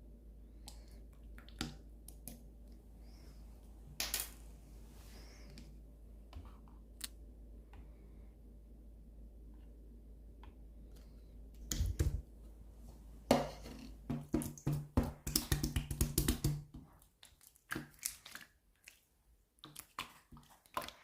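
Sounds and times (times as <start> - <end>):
slime squelch: 13.4 - 21.0.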